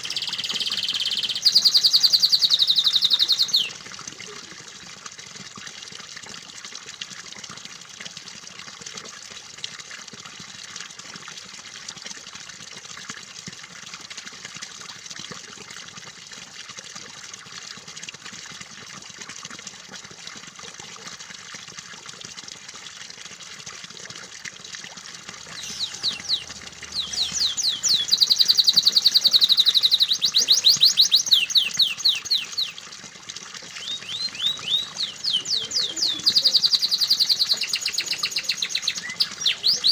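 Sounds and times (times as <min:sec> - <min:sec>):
canary singing trills: 0:00.0 - 0:03.8, 0:25.5 - 0:32.8, 0:33.8 - 0:39.9
trickling splashing water: 0:00.0 - 0:39.9.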